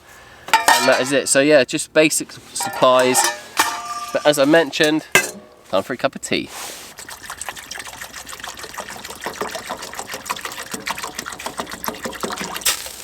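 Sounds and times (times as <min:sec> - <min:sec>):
metal clink: 0:00.5 - 0:01.3, 0:02.6 - 0:05.7
water pouring into metal pot: 0:02.6 - 0:05.3, 0:06.9 - 0:13.0.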